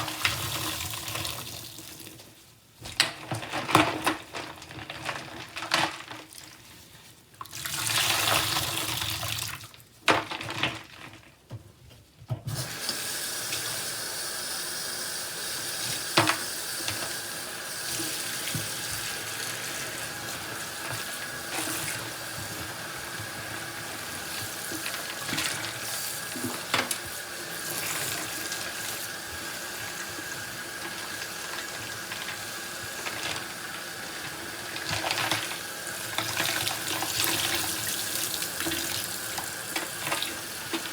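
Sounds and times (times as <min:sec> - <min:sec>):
tap water running into sink: 0:12.4 - 0:40.9.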